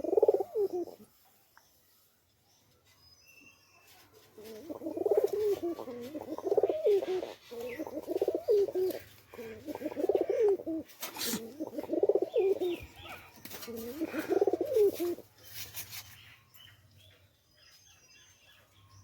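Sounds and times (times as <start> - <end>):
pigeon cooing: 0.0 - 1.0, 4.4 - 15.3.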